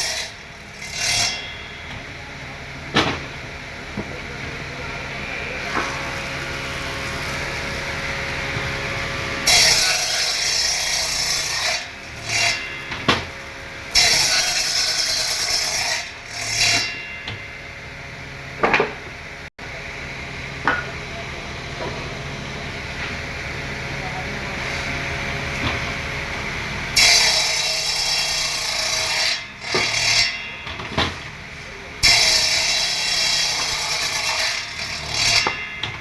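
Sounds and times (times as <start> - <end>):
power tool cutting wood: 0.0 - 17.1, 24.5 - 36.0
power tool humming: 0.0 - 35.9.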